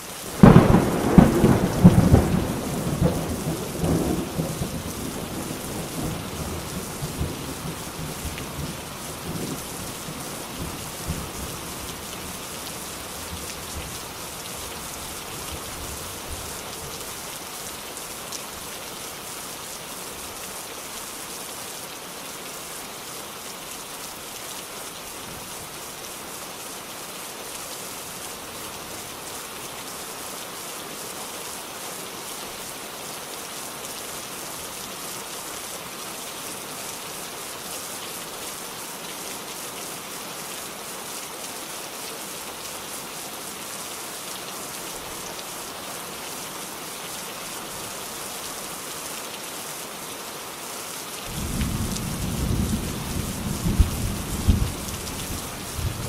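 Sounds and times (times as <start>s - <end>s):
rain falling: 0.0s - 56.0s
thunder rumbling: 0.4s - 10.1s.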